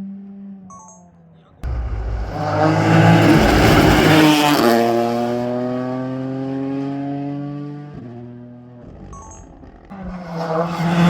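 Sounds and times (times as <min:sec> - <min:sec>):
rally car passing at speed: 0:01.6 - 0:08.8, 0:09.9 - 0:11.0.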